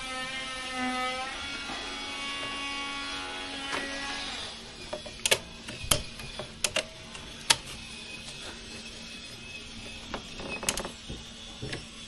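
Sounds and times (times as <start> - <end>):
sharp clicks and knocks: 4.9 - 7.7.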